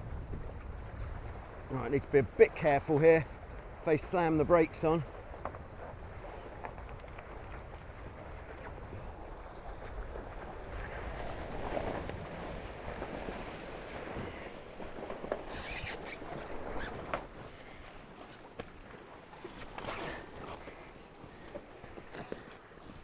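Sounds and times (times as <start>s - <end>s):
wind on microphone: 0.0s - 3.8s
water rushing along hulls: 0.0s - 23.0s.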